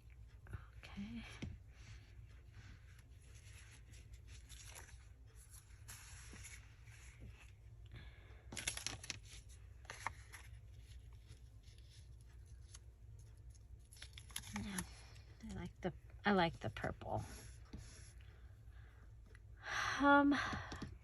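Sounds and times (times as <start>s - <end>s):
paper and fabric rustling: 2.3s - 7.6s, 8.5s - 15.6s.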